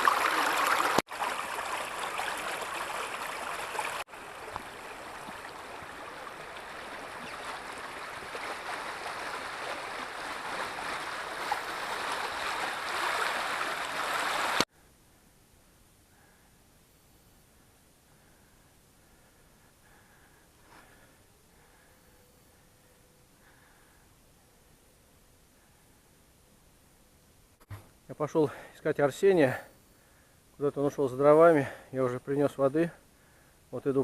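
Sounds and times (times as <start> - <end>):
spring water running: 0.0 - 14.7.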